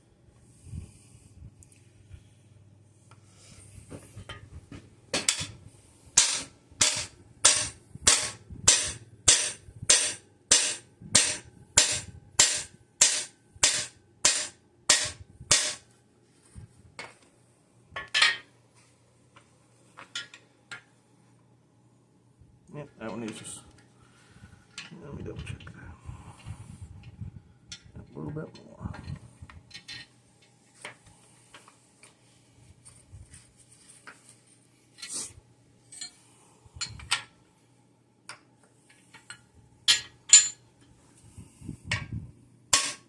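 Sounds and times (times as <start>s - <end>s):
hammer striking metal tool: 6.2s - 15.8s, 42.7s - 43.0s.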